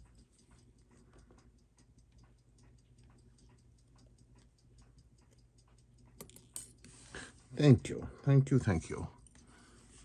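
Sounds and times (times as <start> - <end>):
clock ticking: 0.0 - 6.6.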